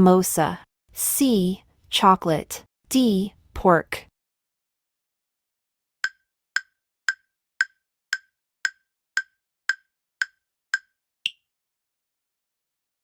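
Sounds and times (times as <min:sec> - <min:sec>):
countdown timer ticks: 0:06.0 - 0:11.4.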